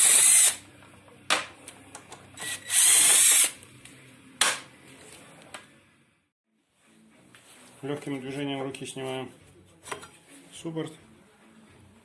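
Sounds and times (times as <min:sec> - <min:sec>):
power tool spinning bolts: 0:00.0 - 0:00.6, 0:02.4 - 0:03.6.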